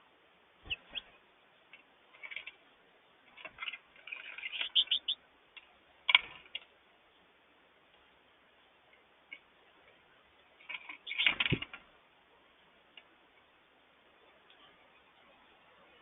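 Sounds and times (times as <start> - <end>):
bird chirps: 0.6 - 1.2, 3.6 - 5.2, 11.0 - 11.5
birds pecking taps and clicks: 3.4 - 6.7.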